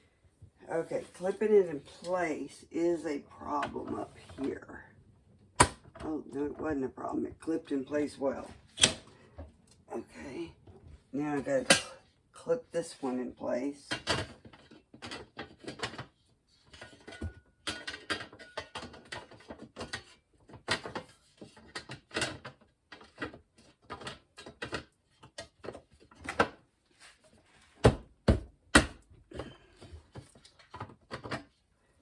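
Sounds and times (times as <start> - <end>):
plastic parts clicking and knocking: 13.9 - 26.6, 27.8 - 31.6.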